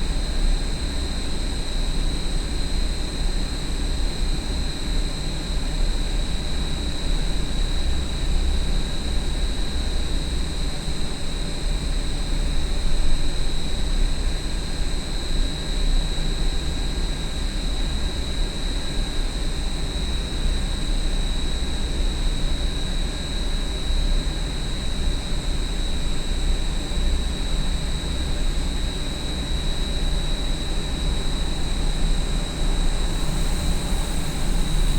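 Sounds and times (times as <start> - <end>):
industrial exhaust fan running: 29.8 - 34.9.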